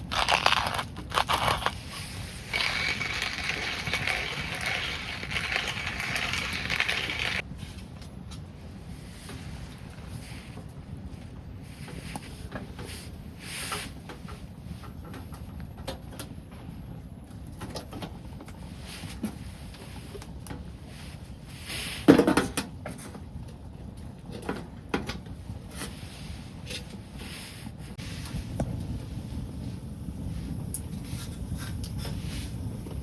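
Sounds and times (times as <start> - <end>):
low rumble: 27.9 - 33.0.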